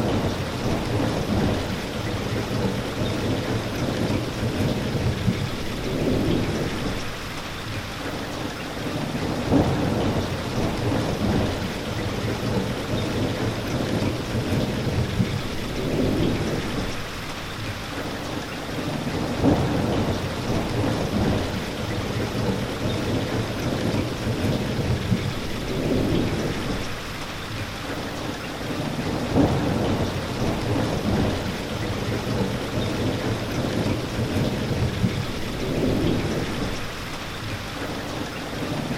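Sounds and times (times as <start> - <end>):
thunder rumbling: 0.0 - 7.2, 9.3 - 17.1, 19.2 - 27.0, 29.1 - 37.0
steady rain: 0.0 - 38.9.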